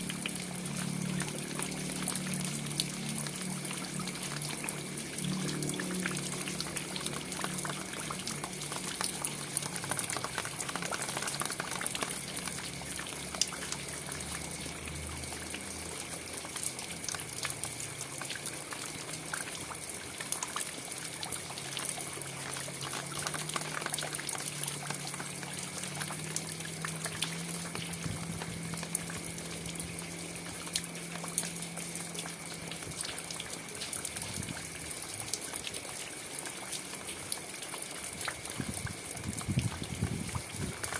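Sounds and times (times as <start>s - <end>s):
low wavering hum: 0.0s - 17.0s, 24.2s - 35.0s
steady rain falling: 0.0s - 40.9s.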